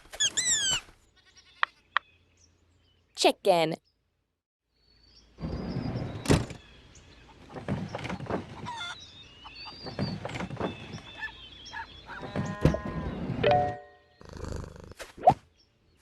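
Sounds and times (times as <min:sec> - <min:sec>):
chickens clucking: 0:08.4 - 0:10.0.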